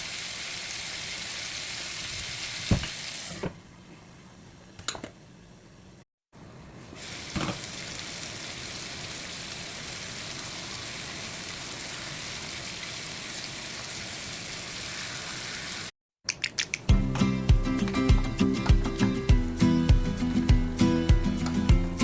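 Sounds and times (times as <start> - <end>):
chicken sizzling in oil: 0.0 - 3.4, 7.0 - 15.9.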